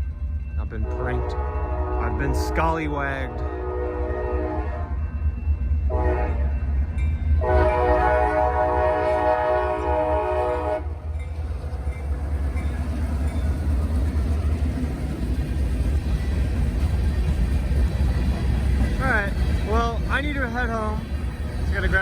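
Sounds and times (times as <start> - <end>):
train rumbling past: 0.0 - 22.0
locomotive horn blasts: 0.8 - 5.0, 5.9 - 6.5, 7.4 - 11.0.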